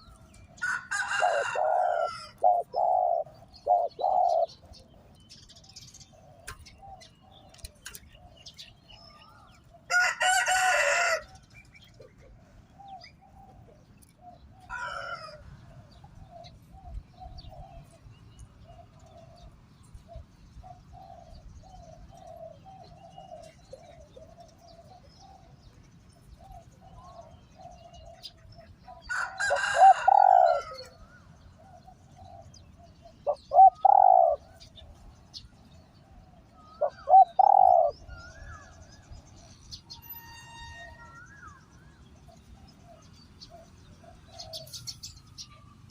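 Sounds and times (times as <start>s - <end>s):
doves cooing: 0.0s - 40.0s, 42.3s - 45.9s
rooster crowing: 0.6s - 2.5s, 9.9s - 11.4s, 14.7s - 15.6s, 29.0s - 31.0s.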